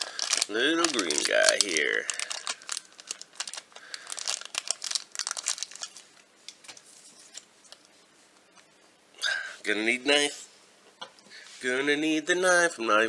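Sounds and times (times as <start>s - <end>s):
packaging crinkling: 0.0s - 7.8s.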